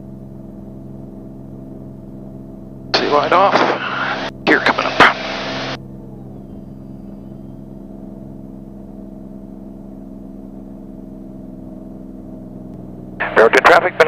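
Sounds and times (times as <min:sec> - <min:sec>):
propeller plane engine drone: 0:00.0 - 0:14.0.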